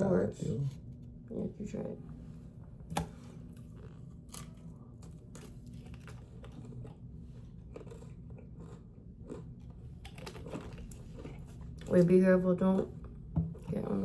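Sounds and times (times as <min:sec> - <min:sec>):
crunchy pastry being chewed: 0:02.9 - 0:12.2.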